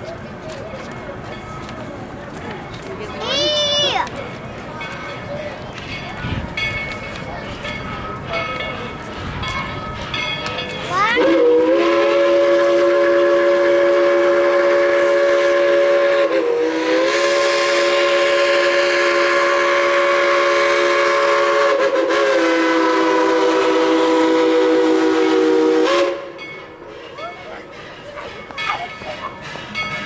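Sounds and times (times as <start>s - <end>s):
steam locomotive chime whistle: 6.0s - 30.0s.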